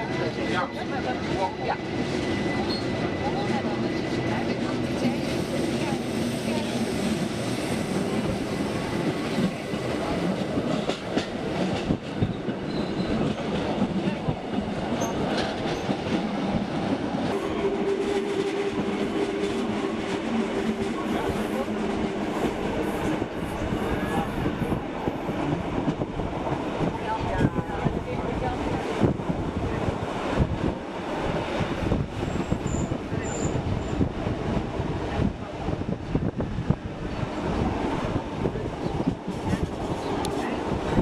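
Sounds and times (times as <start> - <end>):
wheels rumbling on rail: 0.0 - 41.0
rail joint clicks: 10.6 - 17.4, 38.7 - 41.0.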